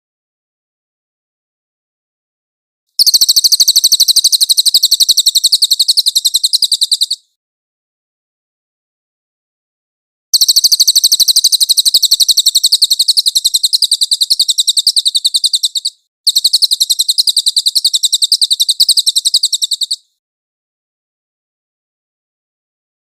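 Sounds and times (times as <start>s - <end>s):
songbird trilling: 3.0s - 7.2s, 10.4s - 20.1s.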